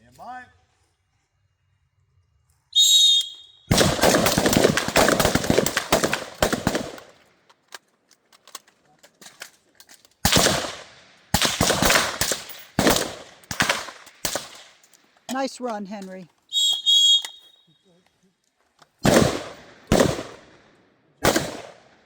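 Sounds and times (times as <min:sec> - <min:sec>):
rifles firing: 0:03.7 - 0:07.2, 0:10.2 - 0:14.9, 0:19.0 - 0:22.0.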